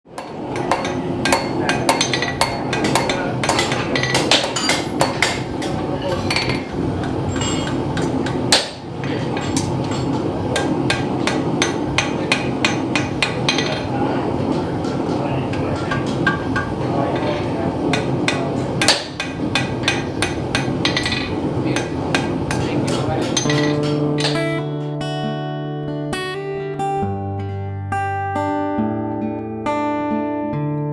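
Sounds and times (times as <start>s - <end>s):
hammer blows on an anvil: 0.1s - 24.6s.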